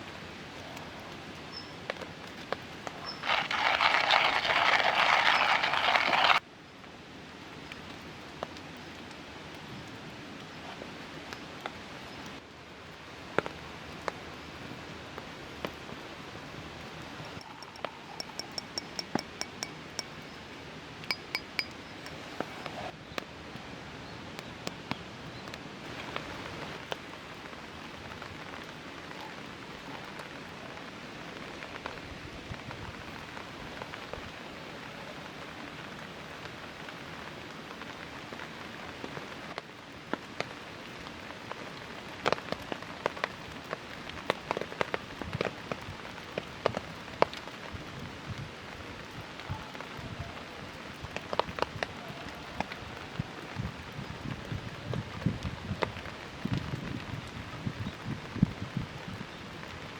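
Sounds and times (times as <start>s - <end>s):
rain pattering on a tarp: 0.0s - 18.4s, 22.2s - 59.9s
light taps: 17.4s - 20.4s, 21.1s - 22.5s
ringing clinks: 17.4s - 20.5s, 21.1s - 22.4s.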